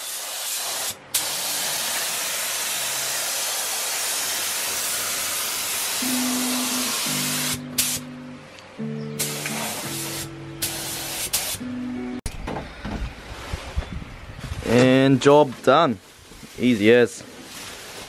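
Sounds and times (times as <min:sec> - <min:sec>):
paint spray gun hissing: 0:00.0 - 0:08.1, 0:09.2 - 0:11.6
background music: 0:06.0 - 0:12.3.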